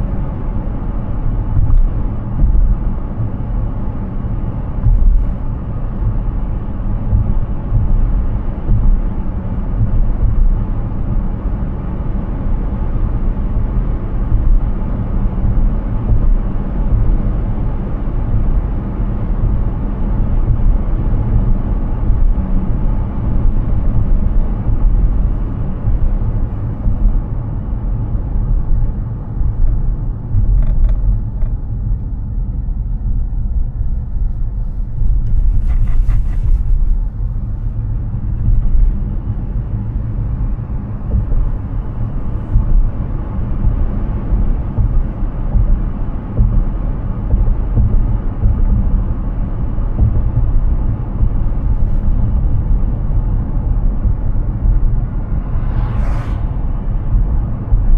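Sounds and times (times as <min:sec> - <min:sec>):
electric car road and wind rumble: 0:00.0 - 0:57.9.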